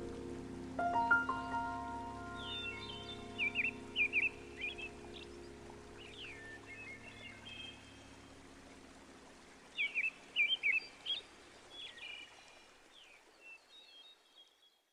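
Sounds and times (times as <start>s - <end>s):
faint low hum: 0.0s - 9.8s
small songbirds chirping: 0.0s - 14.9s.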